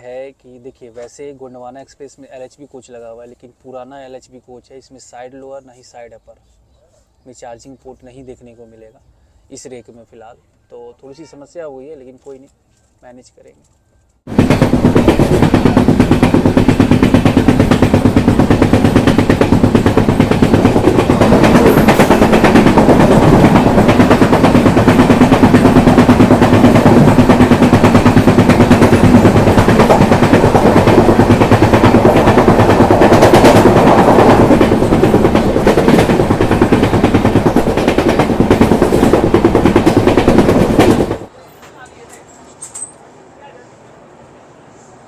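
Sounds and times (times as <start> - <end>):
passenger train clattering at speed: 14.3 - 42.9
train passing on next track: 14.3 - 45.0.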